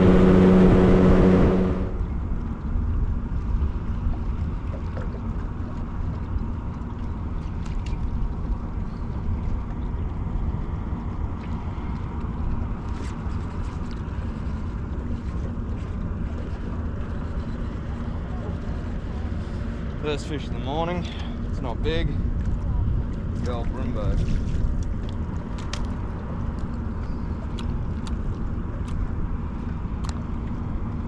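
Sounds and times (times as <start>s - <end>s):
outboard motor idling: 0.0s - 3.0s
wind on microphone: 0.0s - 5.4s.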